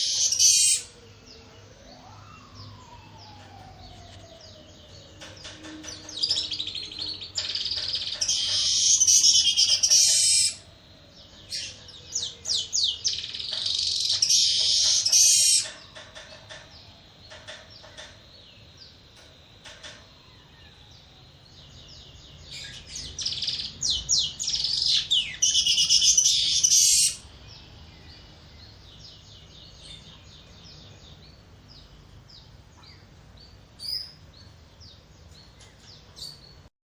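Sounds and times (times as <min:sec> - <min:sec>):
faint bird chirps: 0:00.0 - 0:36.7
weaver bird rapid chattering: 0:05.2 - 0:10.6, 0:11.4 - 0:16.6, 0:22.4 - 0:27.3.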